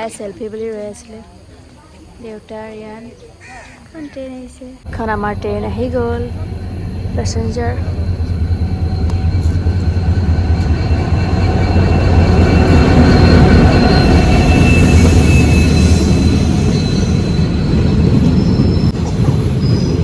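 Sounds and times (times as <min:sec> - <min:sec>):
train coaches rumbling: 0:00.0 - 0:20.0
train wheels squealing: 0:05.3 - 0:20.0.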